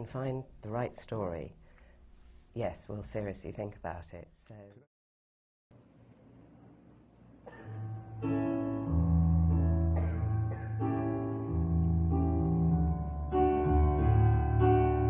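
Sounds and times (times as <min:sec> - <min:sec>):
piano chords over bass line: 0:07.7 - 0:15.0.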